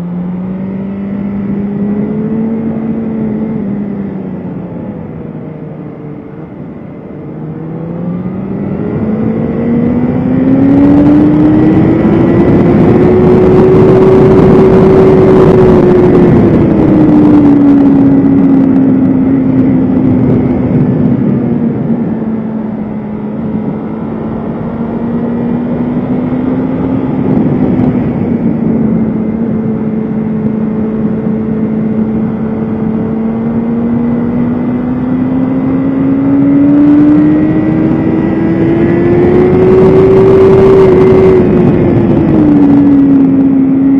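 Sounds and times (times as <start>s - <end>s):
motorcycle engine running hard: 0.0s - 43.9s
wind rushing: 7.6s - 43.9s.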